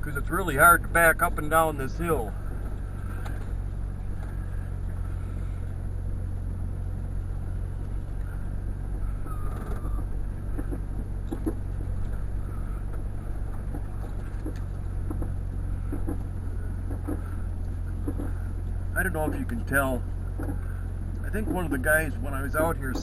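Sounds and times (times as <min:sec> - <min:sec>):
vehicle engine low rumble: 0:00.0 - 0:23.0.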